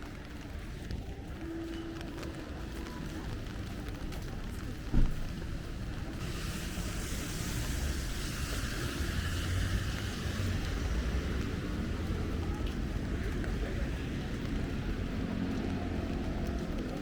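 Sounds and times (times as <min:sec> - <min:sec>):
low engine rumble: 0:00.0 - 0:17.0
tyre hiss on wet road: 0:06.2 - 0:12.6.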